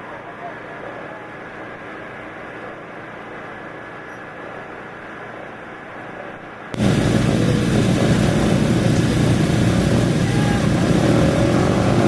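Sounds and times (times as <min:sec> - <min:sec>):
off-road racing engines: 0:06.8 - 0:12.0.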